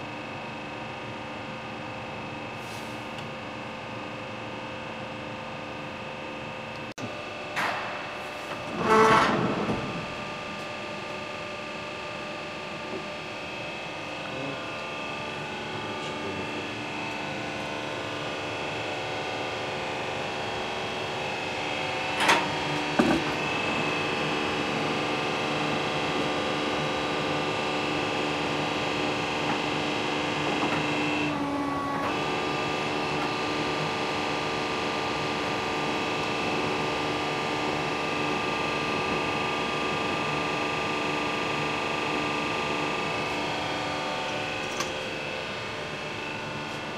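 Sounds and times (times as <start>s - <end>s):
lathe machine hum: 9.6s - 46.9s.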